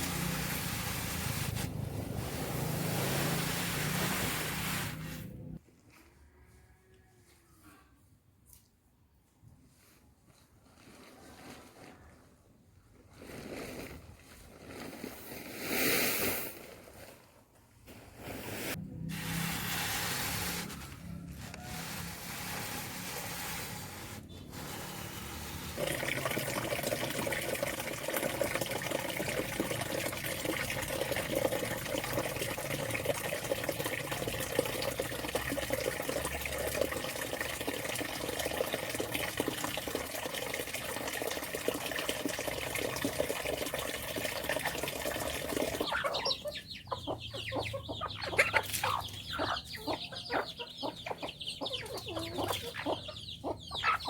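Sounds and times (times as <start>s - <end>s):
chickens clucking: 45.8s - 54.0s.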